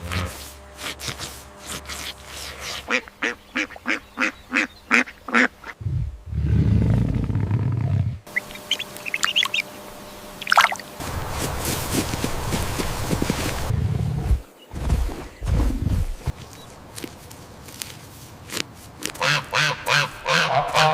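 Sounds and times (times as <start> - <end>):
poultry calling: 2.6 - 5.8, 8.3 - 10.8, 19.1 - 20.9
low rumbling noise: 5.8 - 8.8, 10.8 - 16.4
high peeping chirps: 8.3 - 10.9.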